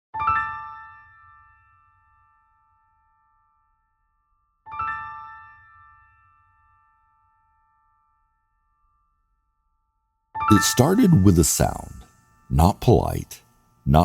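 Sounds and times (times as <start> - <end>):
bell-like keyboard chord: 10.4 - 14.0.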